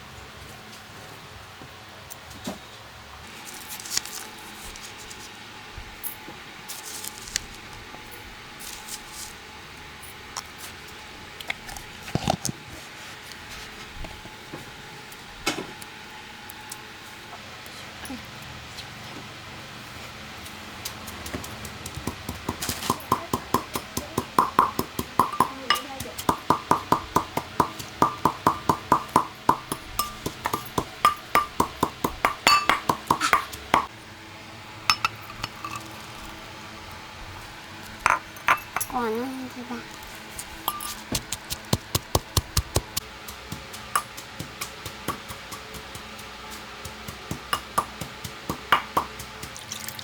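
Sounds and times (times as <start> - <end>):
knife chopping on wooden board: 21.6 - 33.9, 41.1 - 46.2, 46.8 - 49.6.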